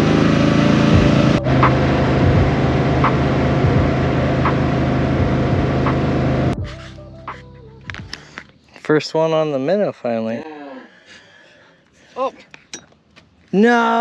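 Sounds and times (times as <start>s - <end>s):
boat motor running: 0.0s - 6.8s.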